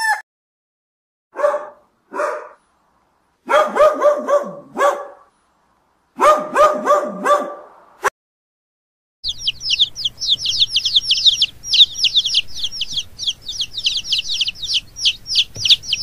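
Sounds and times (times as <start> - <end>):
dog barking: 1.3 - 2.6, 3.4 - 5.3, 6.2 - 8.1.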